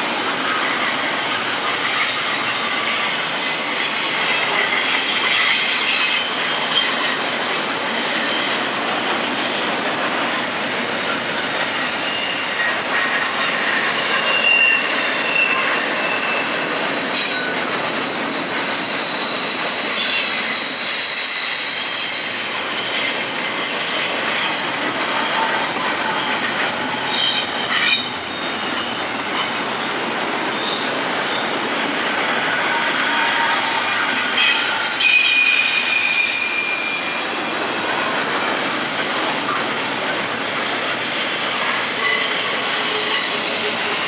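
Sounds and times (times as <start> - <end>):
steel wheels on rails: 0.0 - 44.0
high-pitched wheel squeals: 11.7 - 29.6, 32.5 - 37.4, 41.3 - 44.0.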